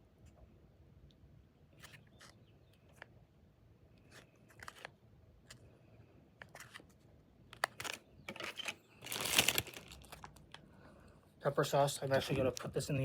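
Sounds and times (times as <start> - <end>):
plastic packets crinkling: 4.1 - 4.9, 7.5 - 10.7.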